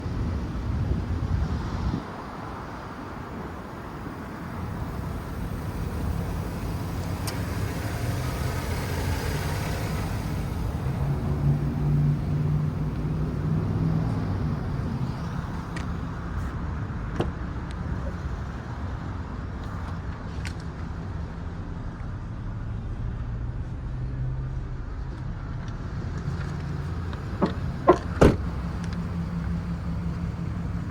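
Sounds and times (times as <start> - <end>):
pickup truck engine running: 0.0 - 16.4, 25.8 - 30.9.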